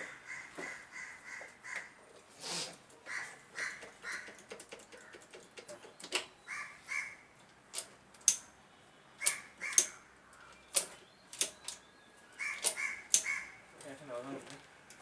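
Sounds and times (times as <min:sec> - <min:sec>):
crows cawing: 0:00.0 - 0:02.0, 0:03.0 - 0:05.3, 0:06.5 - 0:07.2, 0:09.2 - 0:10.6, 0:12.3 - 0:13.7.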